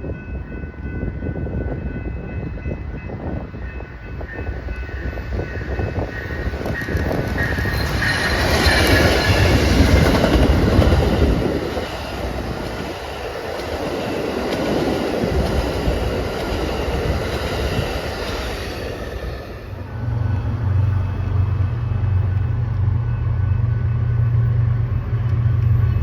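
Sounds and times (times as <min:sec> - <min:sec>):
train wheels clattering on rails: 0:00.0 - 0:19.7.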